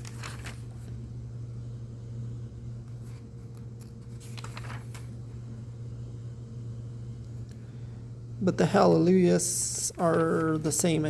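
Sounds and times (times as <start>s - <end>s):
paper pages rustling and turning: 0.0s - 1.0s, 2.8s - 5.2s, 9.9s - 11.0s
low electrical hum: 0.0s - 11.0s.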